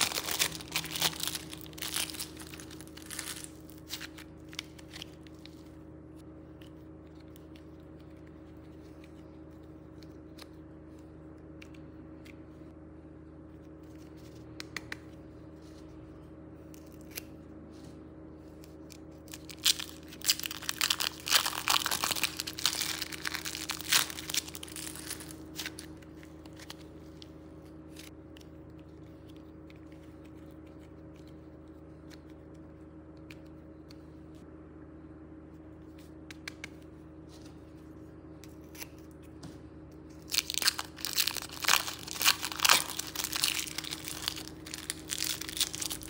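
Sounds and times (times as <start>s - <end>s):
plastic bag crinkling and tearing: 0.0s - 5.6s, 19.3s - 26.9s, 40.3s - 46.0s
steady low hum: 0.0s - 46.0s.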